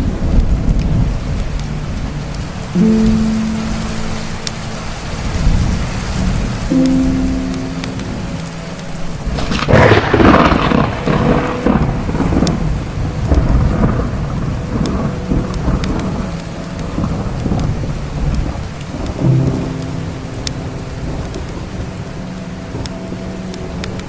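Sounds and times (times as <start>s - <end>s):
steady rain: 0.0s - 24.0s
thunder rumbling: 0.0s - 24.0s
wood fire crackling: 0.0s - 24.0s.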